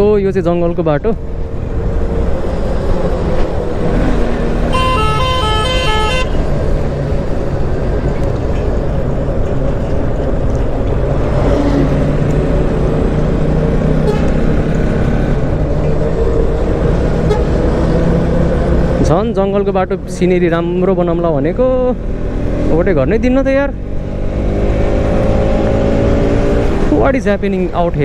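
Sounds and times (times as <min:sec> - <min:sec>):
motorcycle engine and wind: 0:00.0 - 0:28.0
vehicle horn with switching tones: 0:04.7 - 0:06.5, 0:14.0 - 0:14.4.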